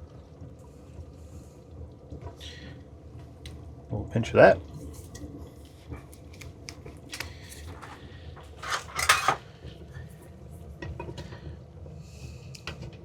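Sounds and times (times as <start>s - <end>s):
utensil scraping in cooking pot: 7.1s - 9.5s.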